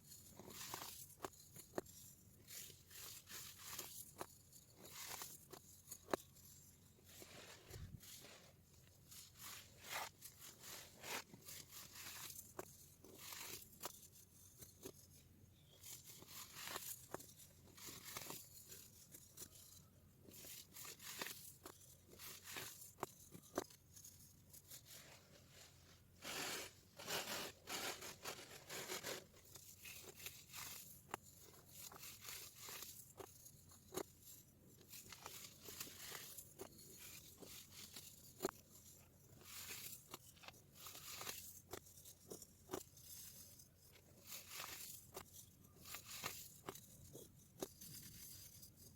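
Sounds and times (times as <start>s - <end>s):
baking soda crunching: 44.2s - 45.2s.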